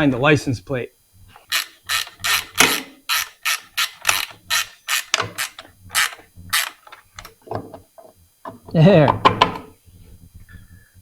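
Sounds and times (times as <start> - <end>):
ratchet wrench clicking: 1.4 - 7.4.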